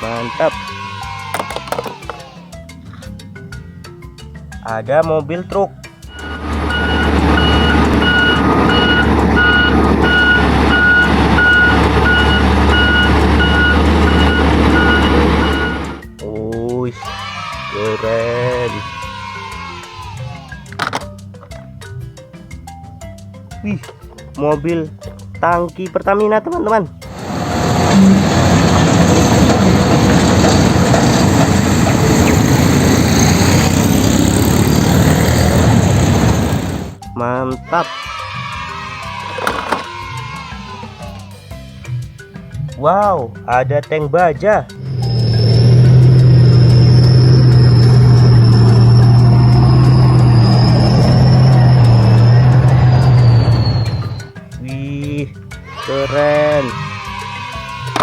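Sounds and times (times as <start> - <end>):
reversing alarm beeps: 6.1 - 16.0, 44.8 - 54.3
truck engine rumbling: 6.1 - 16.2, 27.1 - 37.0, 44.7 - 54.3.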